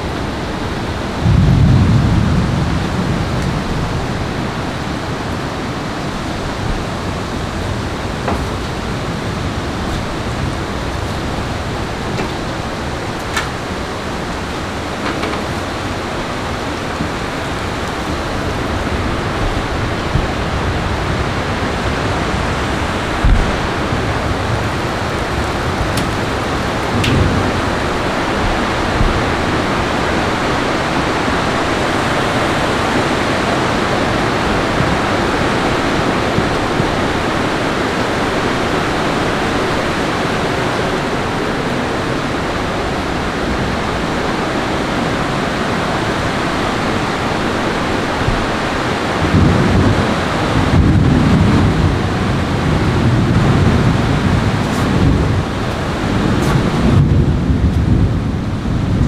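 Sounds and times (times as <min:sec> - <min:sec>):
heavy rain: 0:00.0 - 0:59.0
low thumps: 0:01.3 - 0:21.3, 0:23.2 - 0:29.7.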